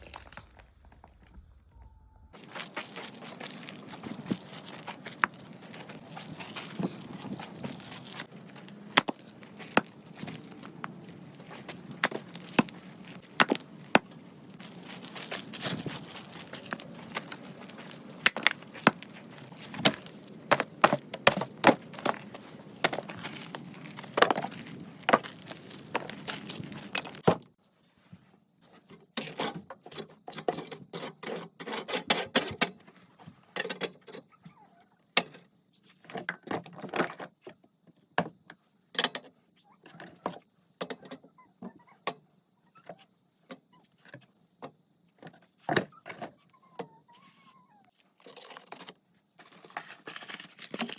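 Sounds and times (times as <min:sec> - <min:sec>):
wood crackling and snapping: 0:00.0 - 0:07.0.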